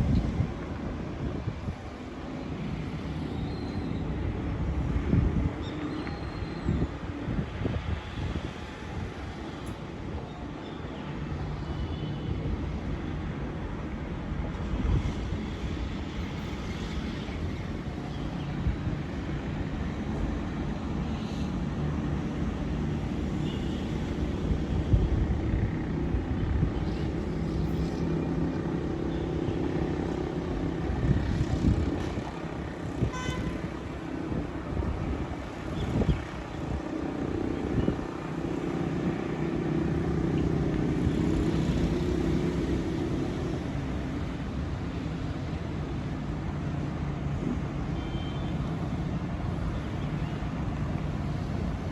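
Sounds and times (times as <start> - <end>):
wind gusting on microphone: 0.0 - 10.6, 24.0 - 47.8.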